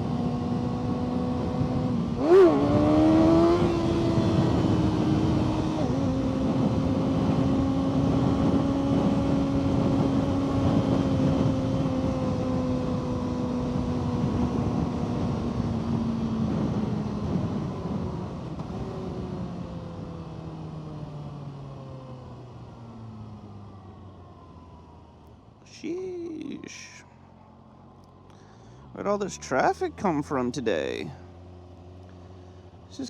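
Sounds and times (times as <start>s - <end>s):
road noise rushing: 22.4s - 33.0s.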